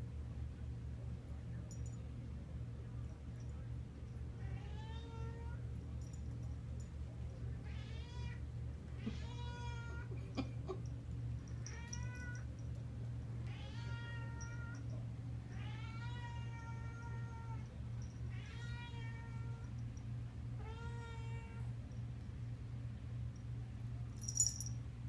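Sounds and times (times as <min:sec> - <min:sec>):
steady low hum: 0:00.0 - 0:25.0
cat meowing: 0:13.5 - 0:14.8, 0:18.3 - 0:19.6.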